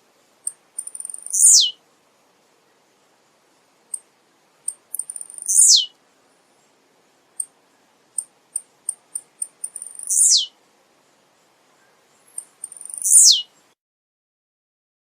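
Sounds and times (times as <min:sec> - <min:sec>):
high bird chips: 0:00.5 - 0:01.7, 0:08.6 - 0:10.5, 0:12.3 - 0:13.4
bird song sweeping downward: 0:01.0 - 0:01.8, 0:05.1 - 0:05.9, 0:09.8 - 0:10.5, 0:12.7 - 0:13.5.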